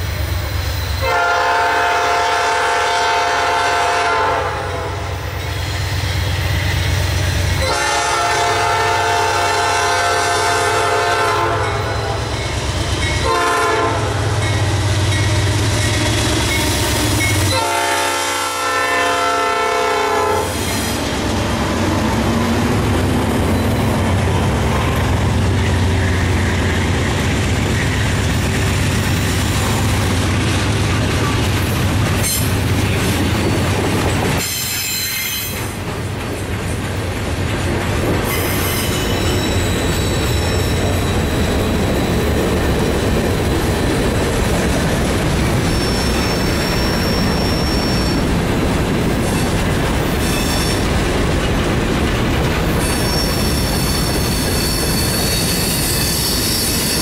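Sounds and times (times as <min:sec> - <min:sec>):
train horn blasts: 0:01.0 - 0:05.2, 0:07.6 - 0:12.3, 0:13.2 - 0:14.6, 0:17.2 - 0:20.6
wheel squeal: 0:34.4 - 0:35.7, 0:38.3 - 0:42.4, 0:45.6 - 0:48.3, 0:49.4 - 0:50.9, 0:52.7 - 0:57.0.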